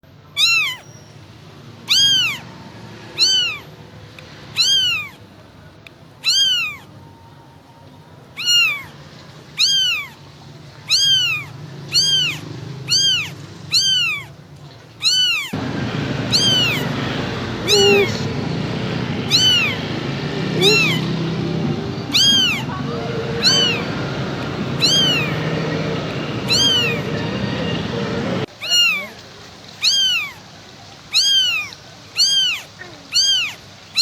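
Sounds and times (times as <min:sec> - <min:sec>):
kitten mewing: 0:00.4 - 0:00.8, 0:01.9 - 0:02.4, 0:03.2 - 0:03.6, 0:04.6 - 0:05.2, 0:06.2 - 0:06.9, 0:08.4 - 0:08.9, 0:09.6 - 0:10.2, 0:10.9 - 0:14.3, 0:15.0 - 0:15.6, 0:16.3 - 0:16.8, 0:17.6 - 0:18.4, 0:19.2 - 0:19.8, 0:20.4 - 0:24.0, 0:24.8 - 0:25.4, 0:26.5 - 0:27.0, 0:28.6 - 0:29.1, 0:29.8 - 0:30.4, 0:31.1 - 0:34.0.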